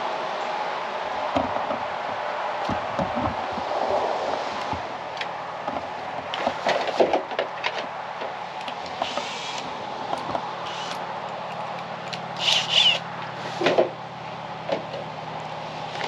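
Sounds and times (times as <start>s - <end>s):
drill boring: 9.0s - 9.7s, 10.6s - 11.0s, 12.4s - 13.1s.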